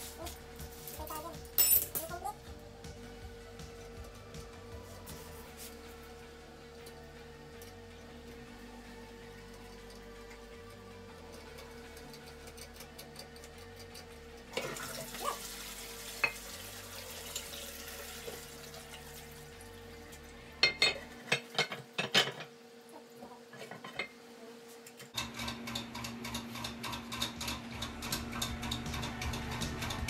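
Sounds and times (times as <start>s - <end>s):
water running into toilet tank: 14.5s - 19.8s.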